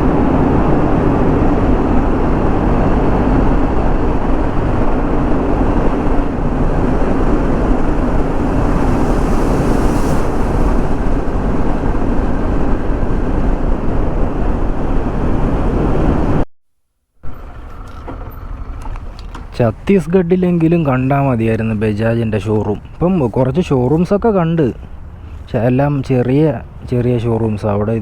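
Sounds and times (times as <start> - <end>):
road noise: 0.0 - 16.4, 17.2 - 28.0
wind rushing over microphone: 0.0 - 16.4.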